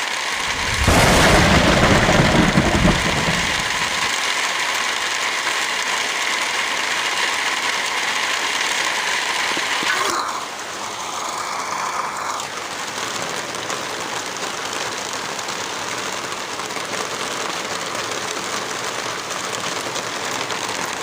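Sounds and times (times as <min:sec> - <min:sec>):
heavy rain hiss: 0:00.0 - 0:04.3
low rumble: 0:00.4 - 0:04.1.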